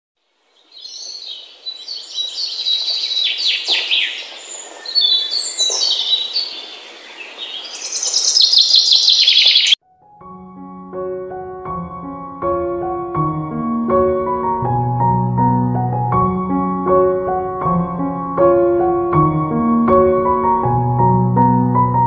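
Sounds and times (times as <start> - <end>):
birds chirping and singing: 0.5 - 9.8
soft piano music: 9.8 - 22.0.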